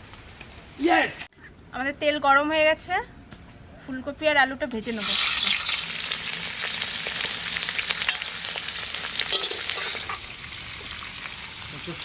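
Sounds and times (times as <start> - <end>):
vegetables sizzling in hot oil: 4.8 - 12.0.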